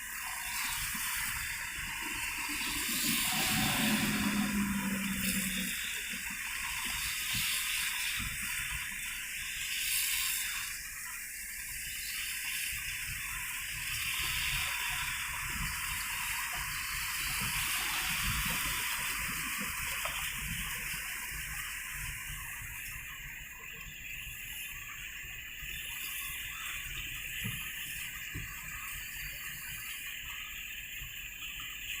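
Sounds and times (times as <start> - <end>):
rain and running water on road: 0.0 - 32.0
low rumble: 2.5 - 6.4.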